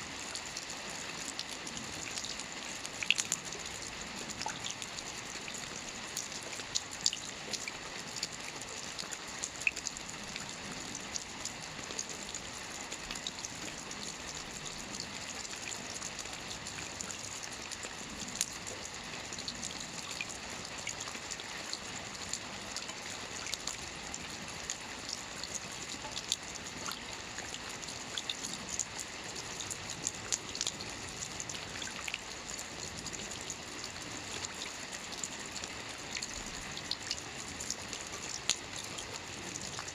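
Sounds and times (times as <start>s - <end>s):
light rain hissing: 0.0s - 39.9s
raindrops ticking on a surface: 0.0s - 39.9s.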